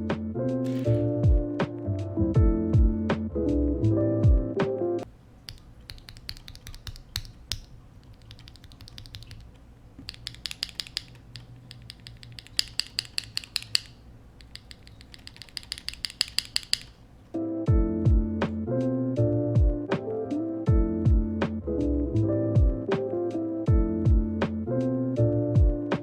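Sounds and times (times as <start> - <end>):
mechanical keyboard typing: 0.6 - 1.2, 5.5 - 17.0.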